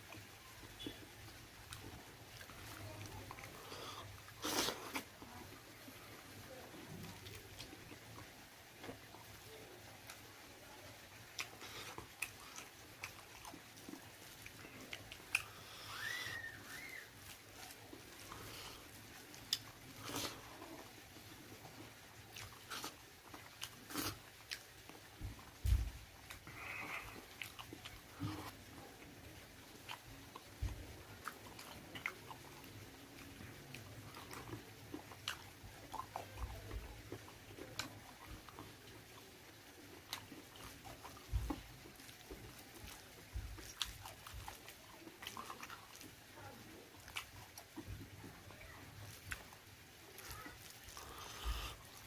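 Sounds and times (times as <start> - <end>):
person chewing and biting: 1.7 - 5.4, 11.3 - 16.1, 17.2 - 20.9, 22.3 - 28.7, 31.2 - 38.6, 39.9 - 46.1, 50.2 - 52.0.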